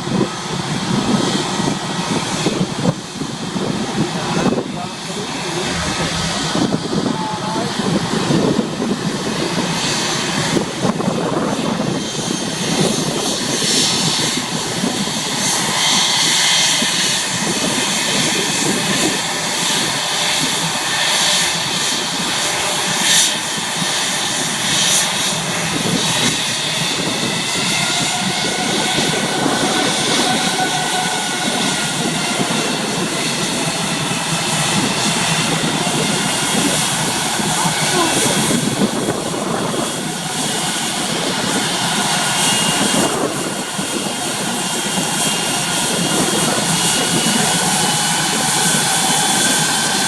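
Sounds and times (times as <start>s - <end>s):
jet engines running: 0.0s - 50.0s
faint whine: 5.1s - 7.8s.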